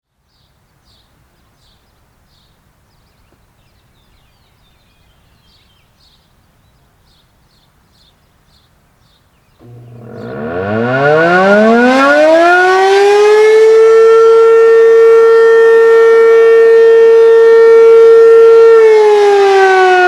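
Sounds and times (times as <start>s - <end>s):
low steady rumble: 9.6s - 13.0s.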